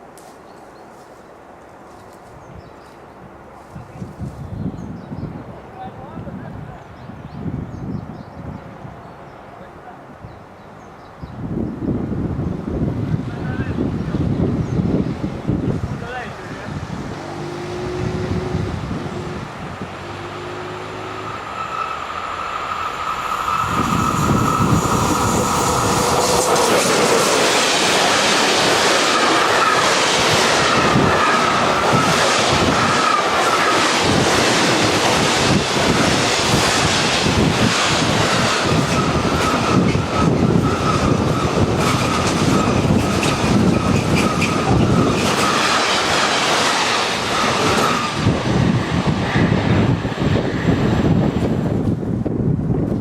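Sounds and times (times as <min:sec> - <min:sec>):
train wheels rushing on rail: 0:08.5 - 0:53.0
high-pitched train whine: 0:13.2 - 0:51.9
train clacking over rail joints: 0:15.7 - 0:50.0.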